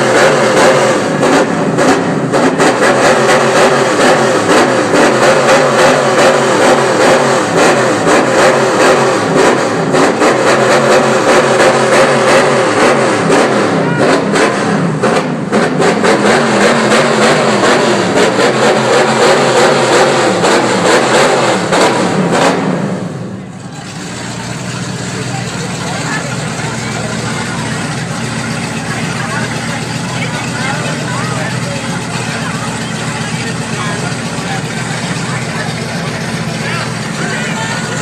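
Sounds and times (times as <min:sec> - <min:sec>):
race car engine revving: 0:00.0 - 0:38.0.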